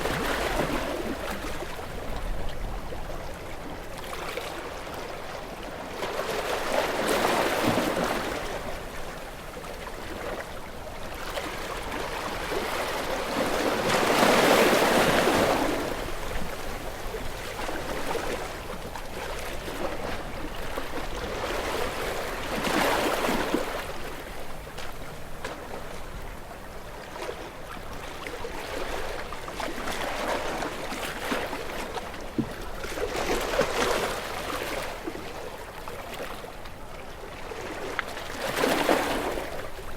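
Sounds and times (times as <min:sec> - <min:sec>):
ocean waves breaking: 0:37.2 - 0:39.9.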